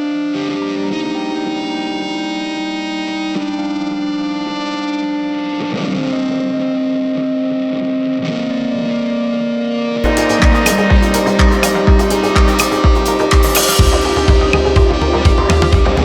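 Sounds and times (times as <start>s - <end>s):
distorted electric guitar: 10.0s - 16.0s.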